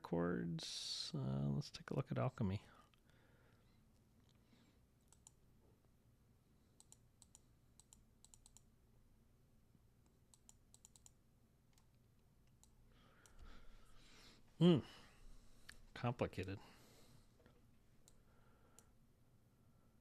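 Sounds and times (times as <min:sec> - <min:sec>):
mouse and keyboard clicks: 0:05.1 - 0:05.4, 0:06.8 - 0:08.7, 0:10.3 - 0:11.9.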